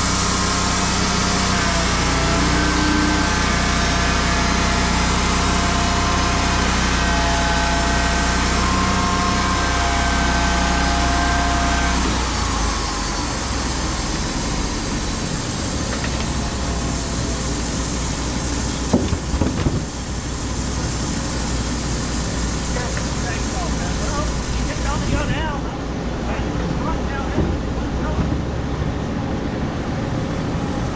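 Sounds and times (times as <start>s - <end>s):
machinery engine whining: 0.0s - 30.9s
sharp knocks: 18.9s - 19.9s, 27.2s - 28.5s.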